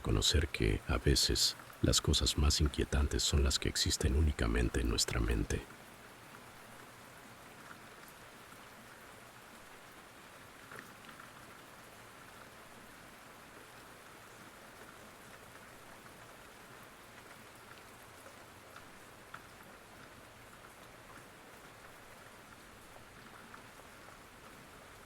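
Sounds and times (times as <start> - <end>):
rain hissing: 0.0 - 5.6.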